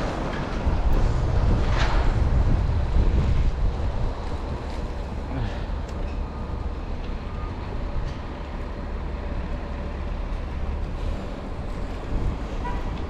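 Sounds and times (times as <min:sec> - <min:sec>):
wind on microphone: 0:00.0 - 0:04.8
city traffic: 0:00.0 - 0:13.0.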